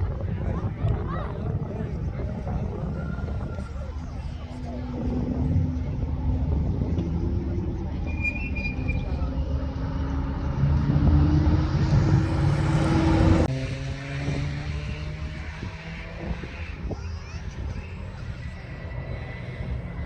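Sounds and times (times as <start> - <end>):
car engine accelerating: 3.5 - 16.9.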